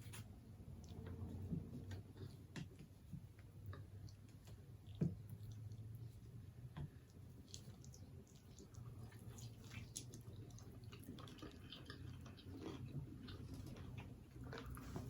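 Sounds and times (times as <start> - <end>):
chewing mouth clicks and smacks: 6.9 - 15.0.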